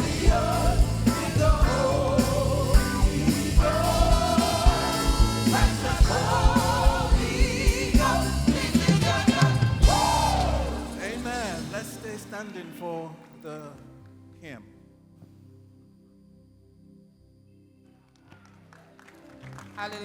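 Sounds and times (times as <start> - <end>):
band with steady drum beat: 0.0 - 11.9
person singing with vibrato: 0.0 - 13.7.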